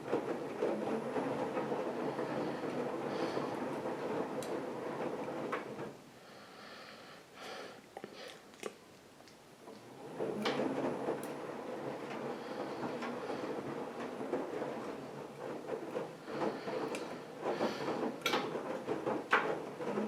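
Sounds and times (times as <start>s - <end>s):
washing machine drum rumbling: 9.9s - 20.0s.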